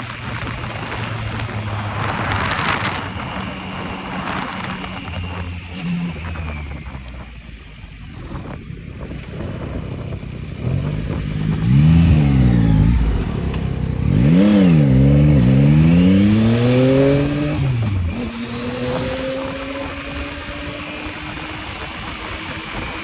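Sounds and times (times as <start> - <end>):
motorcycle engine accelerating: 0.0 - 23.0
wind noise: 0.0 - 23.0.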